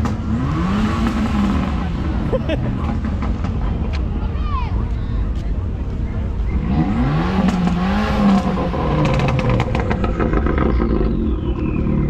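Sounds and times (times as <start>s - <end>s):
car engine revving: 0.0s - 4.0s, 6.3s - 12.0s
exhaust pops: 7.4s - 11.8s.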